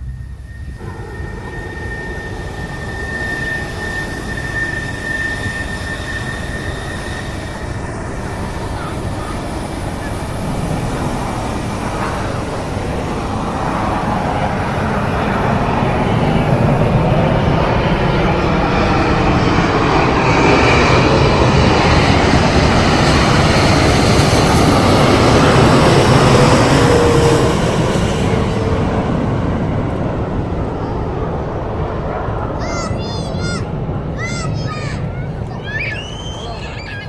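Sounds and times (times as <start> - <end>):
thin high whine: 0.0 - 16.8
airliner engine rumble: 0.0 - 37.0.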